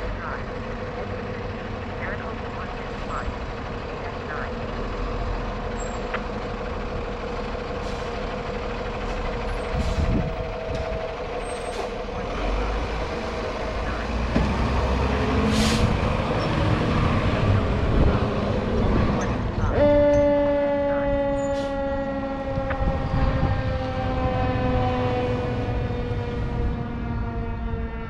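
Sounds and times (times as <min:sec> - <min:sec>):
fire engine running: 0:00.0 - 0:28.0
air brakes hissing: 0:07.8 - 0:08.3, 0:15.5 - 0:16.0.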